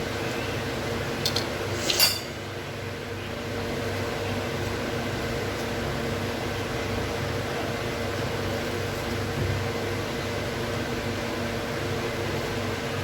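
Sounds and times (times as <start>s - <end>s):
dishware clinking: 1.8s - 2.4s.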